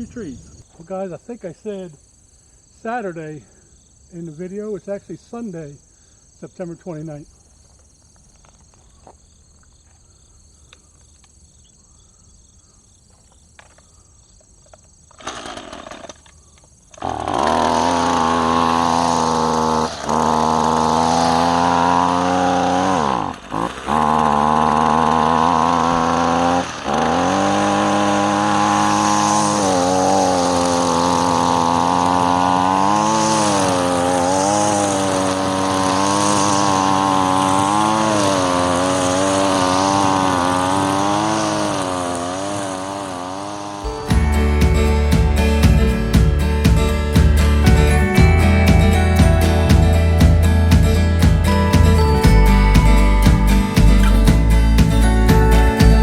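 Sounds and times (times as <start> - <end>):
string trimmer engine running: 15.1 - 16.3, 16.9 - 56.0.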